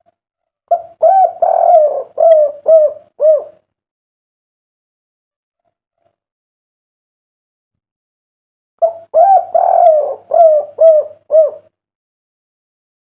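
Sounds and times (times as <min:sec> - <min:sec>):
dove cooing: 0:00.7 - 0:03.6, 0:08.8 - 0:11.8.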